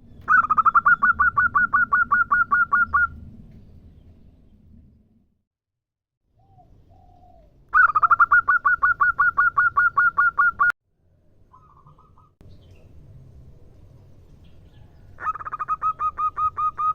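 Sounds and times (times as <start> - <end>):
dove calling in rapid notes: 0.1 - 3.2, 6.4 - 10.7, 11.5 - 12.4, 15.2 - 16.9.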